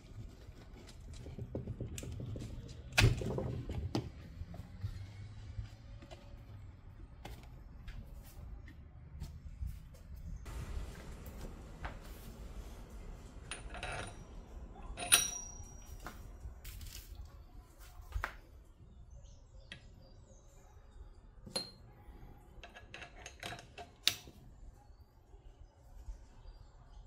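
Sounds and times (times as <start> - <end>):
metal tools clinking: 13.4 - 16.2.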